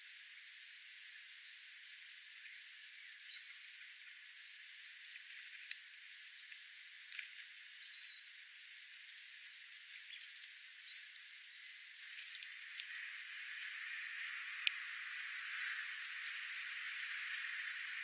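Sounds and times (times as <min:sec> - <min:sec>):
faint steady hiss: 0:00.0 - 0:18.0
bird chirps: 0:01.4 - 0:18.0
light ticks: 0:05.0 - 0:11.4, 0:12.0 - 0:18.0.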